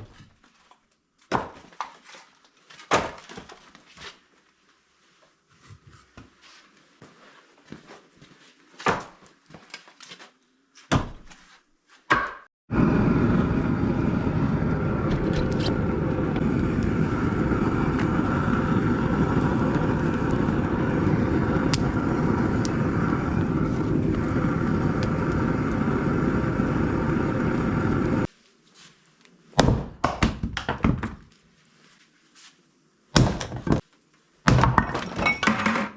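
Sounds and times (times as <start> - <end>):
engine running steadily: 12.7 - 28.3.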